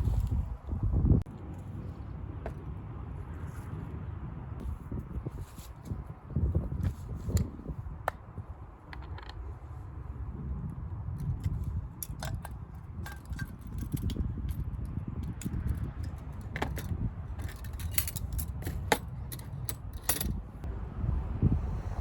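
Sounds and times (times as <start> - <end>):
low rumble: 20.4 - 22.0.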